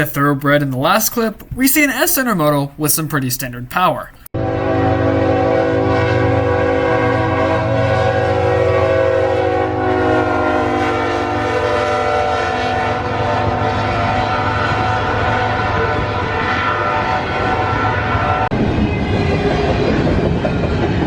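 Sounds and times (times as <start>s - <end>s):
train horn chord: 4.4s - 18.5s
train rolling: 5.6s - 21.0s.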